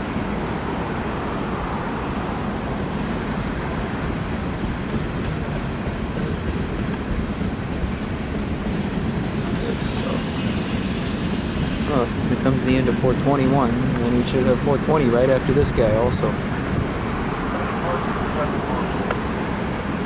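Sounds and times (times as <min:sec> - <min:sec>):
train wheels rumbling on rails: 0:00.0 - 0:20.0
faint high wheel squeal: 0:08.8 - 0:13.2.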